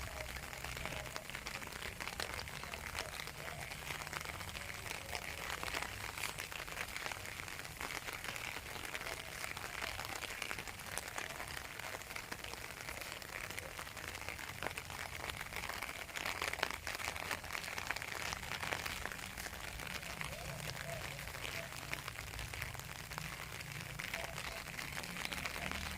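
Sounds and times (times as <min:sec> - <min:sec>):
raindrops ticking on surfaces: 0:00.0 - 0:25.9
steady rain: 0:00.0 - 0:25.9.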